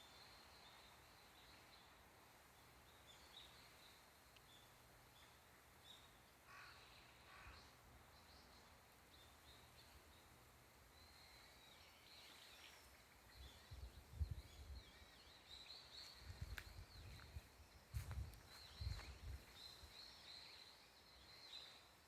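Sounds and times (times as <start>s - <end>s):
faint birdsong: 0.0s - 22.0s
low rumbles on microphone: 13.4s - 14.9s.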